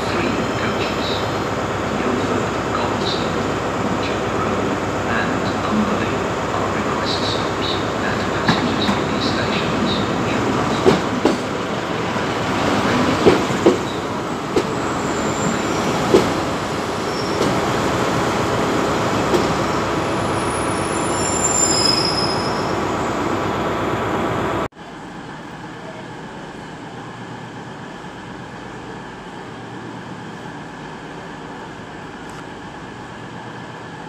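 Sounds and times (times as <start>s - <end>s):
station background noise: 0.0s - 34.0s
train rumble: 0.0s - 34.0s
high wheel squeals: 14.7s - 16.1s, 16.9s - 17.8s, 19.7s - 23.4s.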